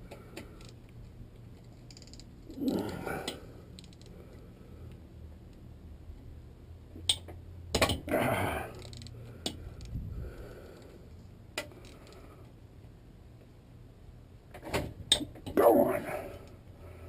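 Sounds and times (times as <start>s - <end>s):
man grunting: 2.5s - 3.4s, 8.0s - 8.8s, 15.6s - 16.4s.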